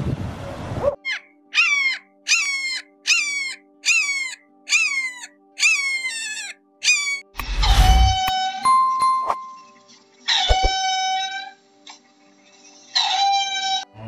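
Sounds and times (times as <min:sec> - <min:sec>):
hawk crying: 0:01.1 - 0:07.3.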